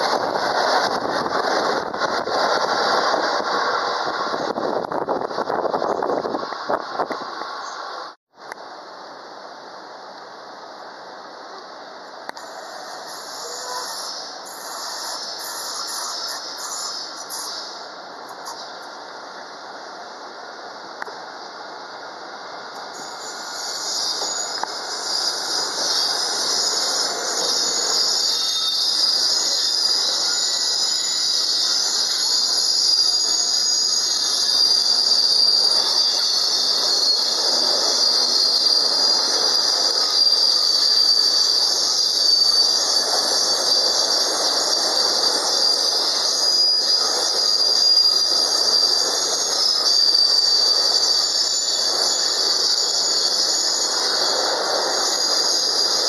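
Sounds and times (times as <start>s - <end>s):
train wheels rumbling and clattering: 0.0s - 7.6s, 22.7s - 56.0s
high metallic wheel squeal: 12.3s - 18.9s, 22.8s - 56.0s.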